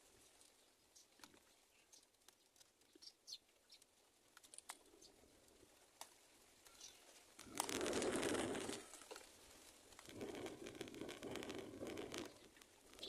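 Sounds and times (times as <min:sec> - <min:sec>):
rustle: 0:00.0 - 0:13.0
faint high bird chirps: 0:06.6 - 0:07.6.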